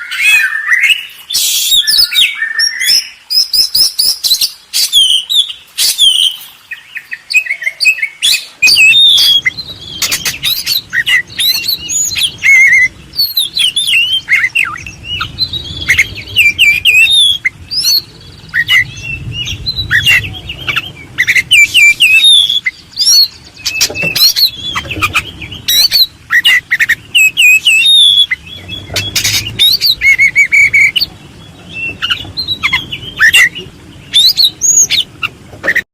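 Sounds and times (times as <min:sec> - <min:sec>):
birds chirping: 0:00.0 - 0:35.9
low rumble: 0:08.6 - 0:35.6.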